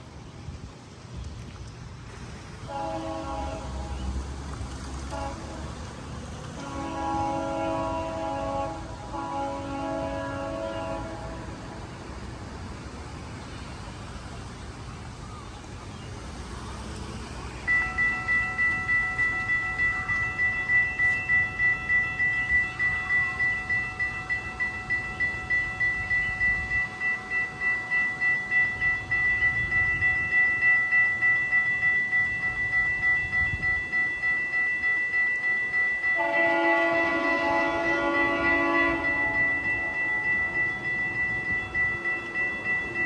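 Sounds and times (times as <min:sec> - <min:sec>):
train air horn: 0:02.6 - 0:04.2, 0:05.1 - 0:05.9, 0:06.5 - 0:11.8, 0:36.1 - 0:40.9
level crossing bell ringing: 0:17.6 - 0:43.0.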